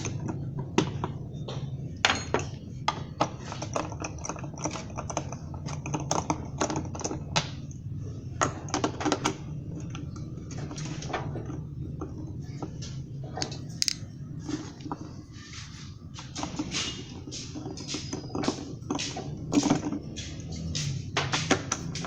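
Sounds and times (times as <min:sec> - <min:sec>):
tools clicking on metal: 0:13.4 - 0:14.0.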